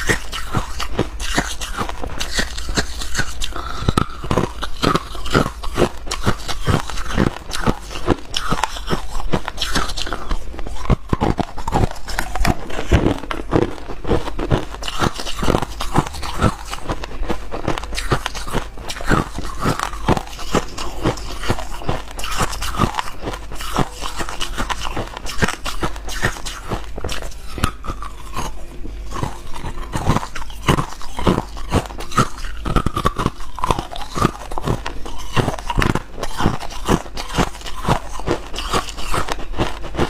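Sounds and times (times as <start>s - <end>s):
person chewing ice: 0.0s - 40.0s.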